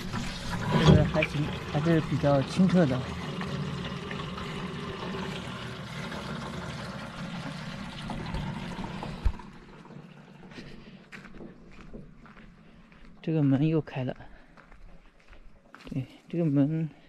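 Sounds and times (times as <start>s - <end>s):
water pouring into a container: 0.0s - 11.0s.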